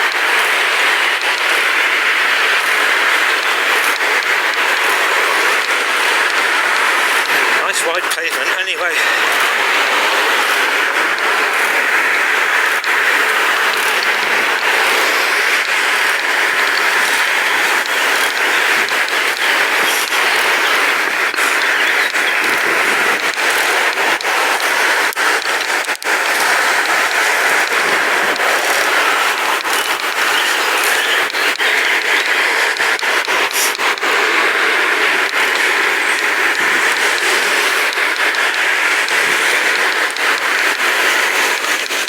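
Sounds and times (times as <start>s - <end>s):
bike tyre noise: 0.0s - 42.0s
wind on microphone: 0.0s - 42.0s.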